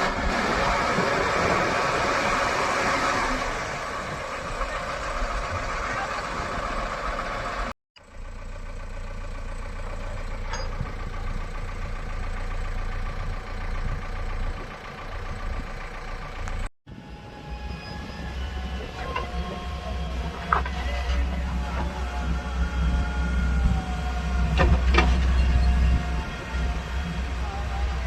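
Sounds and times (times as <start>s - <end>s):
diesel engine running: 0.0s - 28.0s
metallic clanks: 10.4s - 11.0s.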